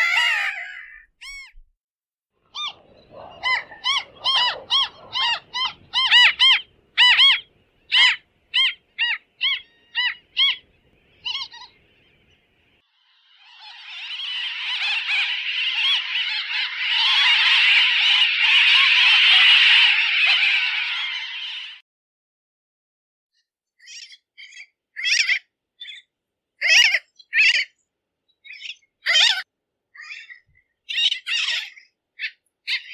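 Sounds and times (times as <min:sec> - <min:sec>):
tern harsh calls: 0:00.0 - 0:01.6, 0:02.4 - 0:12.2
tern colony chorus: 0:02.6 - 0:12.3.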